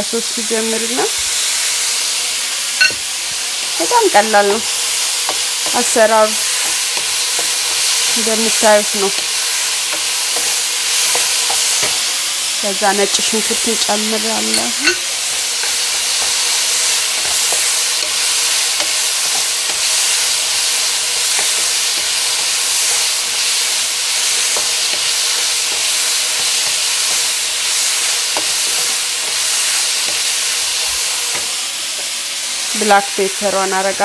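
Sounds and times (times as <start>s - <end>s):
food sizzling in a frying pan: 0.0s - 34.0s
spatula tapping a pan: 5.2s - 12.1s, 14.4s - 32.1s.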